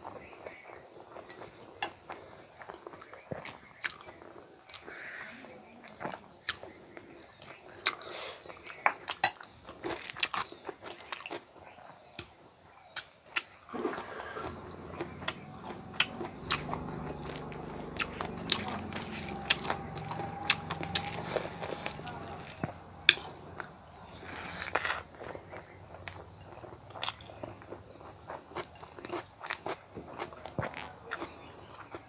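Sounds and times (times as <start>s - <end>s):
close-miked crunchy chewing: 0.0s - 32.0s
low steady rumble: 13.8s - 28.3s.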